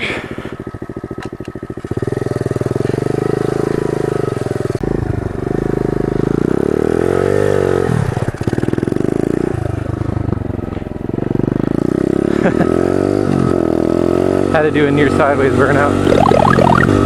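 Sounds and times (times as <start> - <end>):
pit bike engine revving: 15.1 - 17.0.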